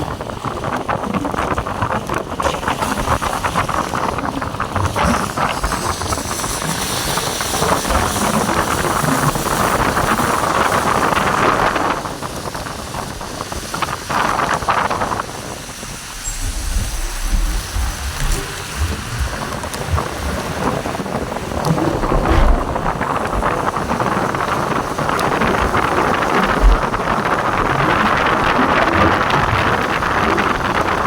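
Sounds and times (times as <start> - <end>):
heavy rain pouring: 14.2 - 31.0.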